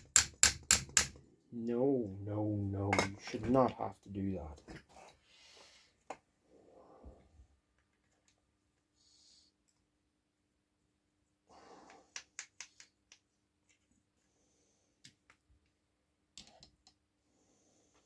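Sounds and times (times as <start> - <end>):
sharp clicks and taps of metal parts: 0.0 - 1.3, 12.1 - 13.8, 16.3 - 17.0.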